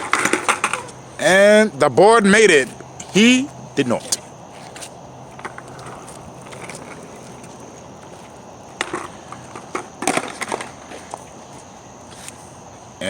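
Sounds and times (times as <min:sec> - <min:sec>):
skateboard pop: 0:00.0 - 0:00.9, 0:08.7 - 0:10.9
skateboard clattering down: 0:00.0 - 0:01.0, 0:08.7 - 0:10.9
skateboard wheels rolling on pavement: 0:00.0 - 0:13.0.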